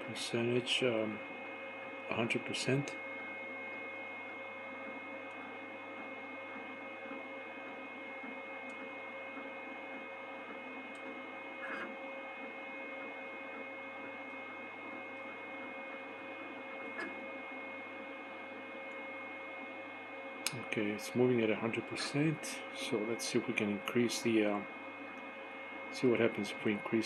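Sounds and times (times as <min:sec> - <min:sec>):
whining tones: 0:00.0 - 0:20.4.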